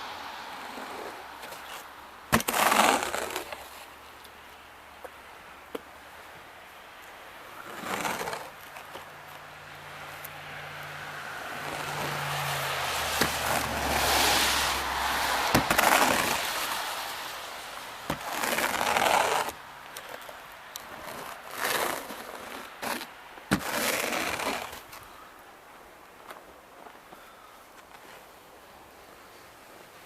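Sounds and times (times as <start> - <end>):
brush sweeping snow off car: 0.6 - 3.9, 7.6 - 8.6, 11.6 - 19.6, 20.9 - 25.0.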